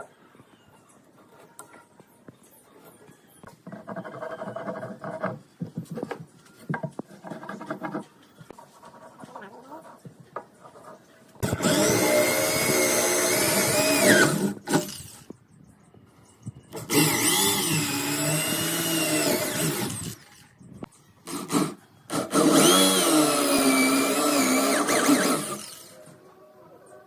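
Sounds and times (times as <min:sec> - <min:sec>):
power tool cutting wood: 0:11.4 - 0:15.2, 0:16.8 - 0:20.3, 0:21.3 - 0:26.0.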